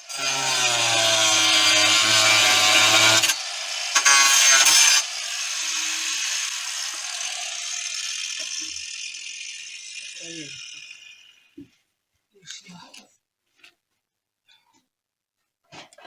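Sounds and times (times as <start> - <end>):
angle grinder cutting: 0.0 - 11.6
grinder disc spinning down: 0.2 - 11.6.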